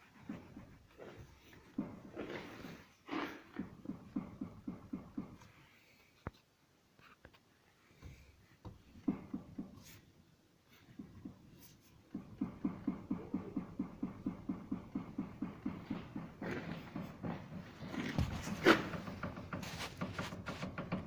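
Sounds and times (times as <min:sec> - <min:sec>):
steering knocking: 0:10.9 - 0:21.0.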